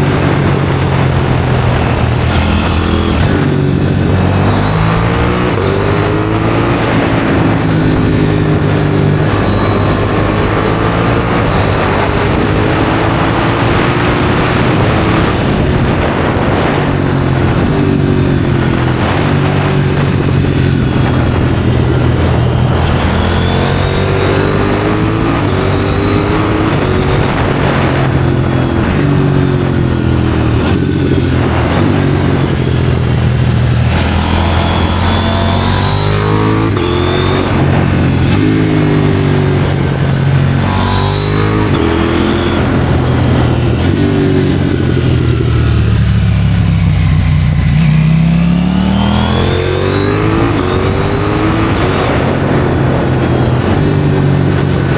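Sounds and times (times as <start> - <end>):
motorcycle engine revving: 0.0 - 54.9
wind noise: 0.0 - 54.9.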